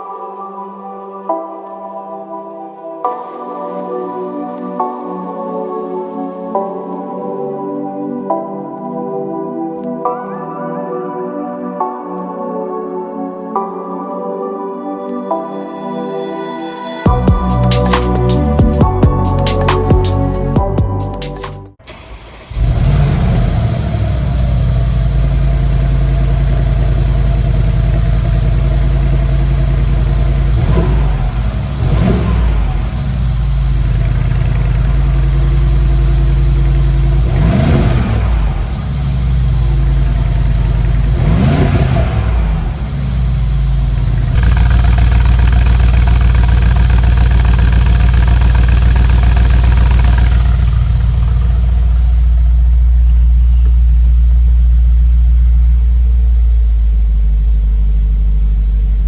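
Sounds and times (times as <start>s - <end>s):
car engine idling and revving: 17.1s - 59.0s.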